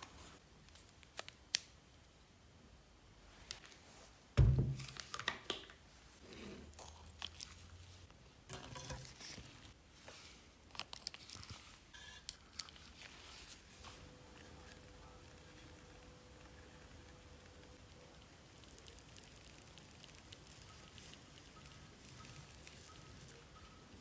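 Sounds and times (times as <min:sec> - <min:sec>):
heavy thump: 0:04.4 - 0:04.8.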